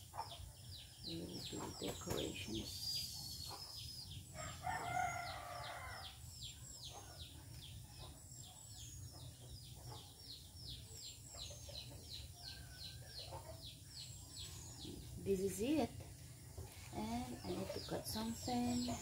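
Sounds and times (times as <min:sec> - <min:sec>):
rooster crowing: 0:04.4 - 0:06.2.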